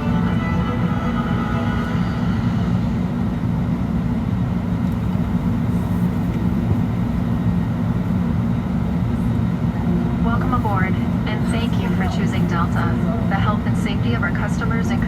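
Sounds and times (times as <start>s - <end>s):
music: 0.0s - 3.0s, 9.3s - 15.0s
aircraft cabin air-conditioning hum: 0.0s - 15.0s.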